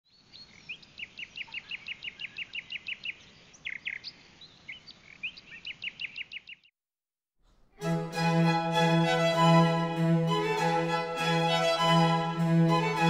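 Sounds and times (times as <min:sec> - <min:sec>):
songbird chirping: 0:00.1 - 0:06.7.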